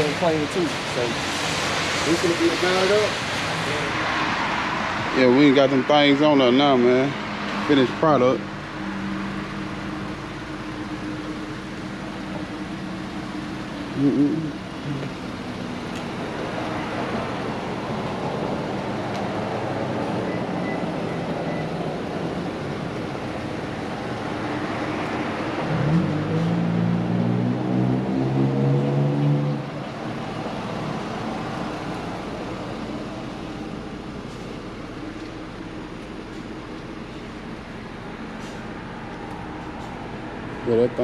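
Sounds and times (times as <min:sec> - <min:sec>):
road noise: 0:00.0 - 0:41.0
car engine running: 0:05.0 - 0:20.2, 0:29.6 - 0:41.0.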